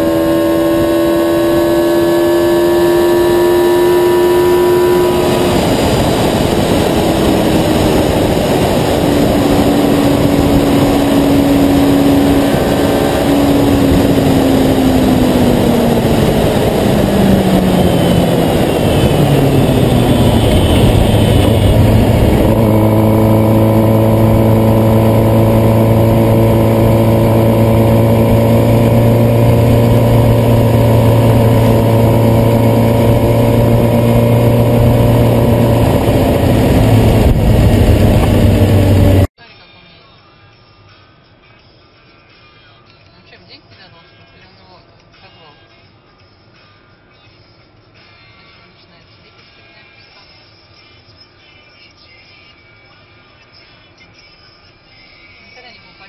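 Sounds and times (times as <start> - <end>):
vehicle engine humming: 0.0 - 39.4.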